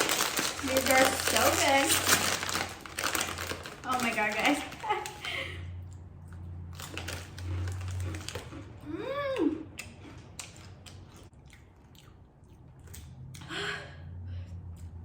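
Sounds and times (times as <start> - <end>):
crunching chips: 0.0 - 8.8.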